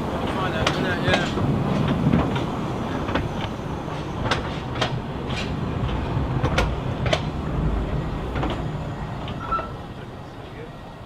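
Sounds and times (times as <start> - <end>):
steam train rumbling: 0.0 - 11.0
sharp clicks and knocks: 0.3 - 7.4, 8.3 - 9.6.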